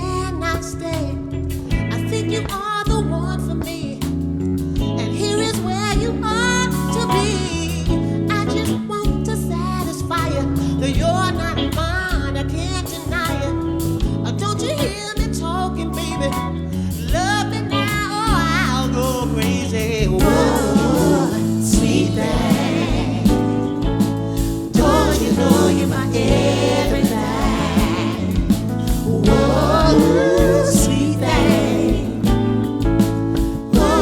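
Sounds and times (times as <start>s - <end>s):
soul band playing: 0.0s - 34.0s
women singing harmonies: 20.0s - 34.0s.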